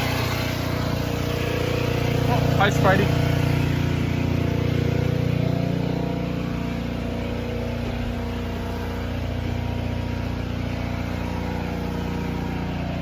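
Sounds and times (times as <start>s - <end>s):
pressure washer engine running: 0.0s - 13.0s.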